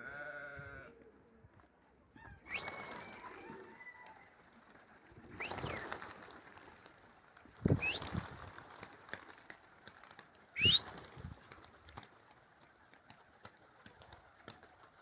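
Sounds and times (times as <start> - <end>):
rising whistle: 2.5 - 3.3, 10.6 - 10.9
wind gusting across microphone: 7.6 - 8.5.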